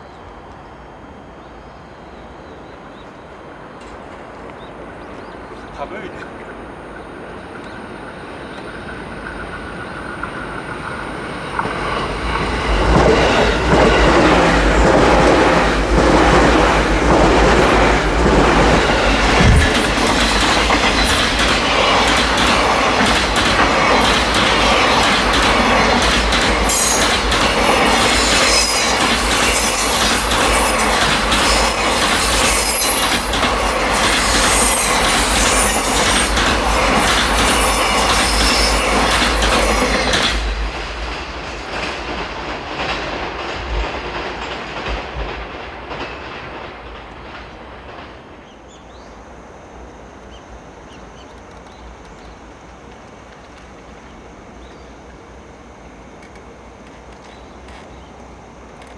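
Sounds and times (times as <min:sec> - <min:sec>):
train wheels clattering over rail joints: 0:08.5 - 0:49.0
faint high wheel squeal: 0:28.1 - 0:36.3, 0:37.5 - 0:40.1.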